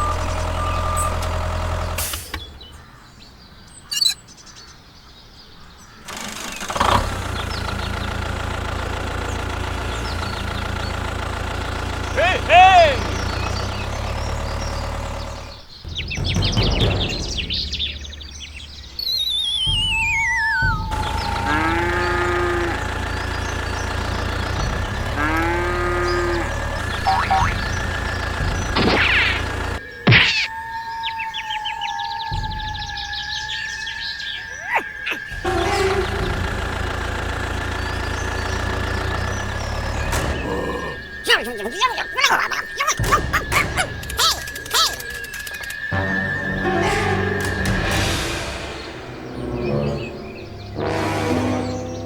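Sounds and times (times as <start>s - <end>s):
engine idling: 0.0s - 3.0s, 6.0s - 29.9s, 35.2s - 52.0s
bird-like chirps: 0.0s - 6.6s, 7.3s - 46.6s
falling warbling whistle: 19.0s - 21.4s, 28.8s - 35.4s.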